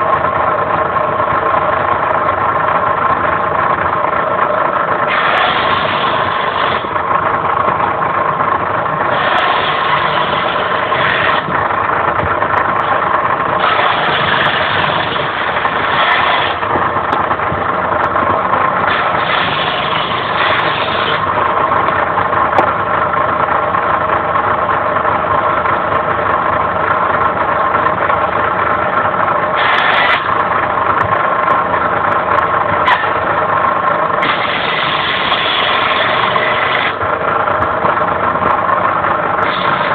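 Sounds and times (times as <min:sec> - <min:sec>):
circular saw whining: 0:04.4 - 0:22.7, 0:29.5 - 0:30.6, 0:32.7 - 0:39.9
saw blade cutting firewood: 0:05.0 - 0:07.1, 0:09.0 - 0:11.6, 0:13.6 - 0:17.2, 0:18.8 - 0:21.4, 0:29.5 - 0:30.4, 0:32.8 - 0:33.3, 0:34.2 - 0:37.1, 0:39.4 - 0:39.9.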